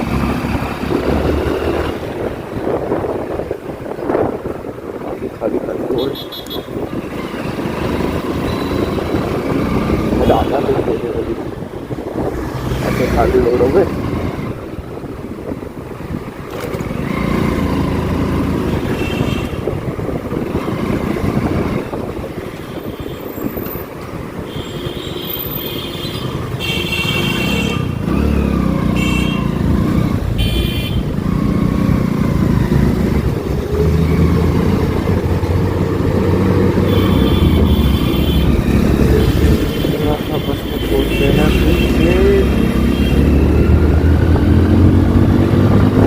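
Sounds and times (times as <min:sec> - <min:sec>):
road and wind noise: 0:00.0 - 0:46.0
vehicle horn honks: 0:06.0 - 0:06.8, 0:24.5 - 0:27.9, 0:28.9 - 0:29.6, 0:30.4 - 0:31.1, 0:36.8 - 0:38.6, 0:39.2 - 0:43.4.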